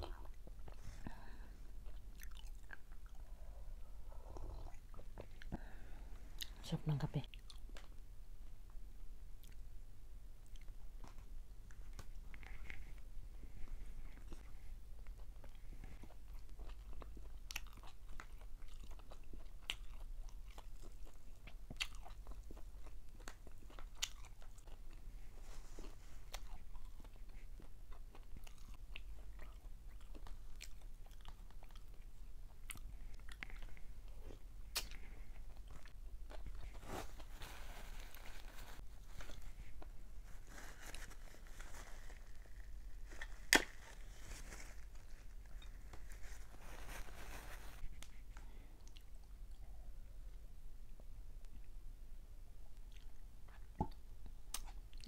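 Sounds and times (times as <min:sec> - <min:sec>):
person chewing fried fish: 0:01.8 - 0:03.3, 0:14.2 - 0:25.1, 0:25.8 - 0:36.8.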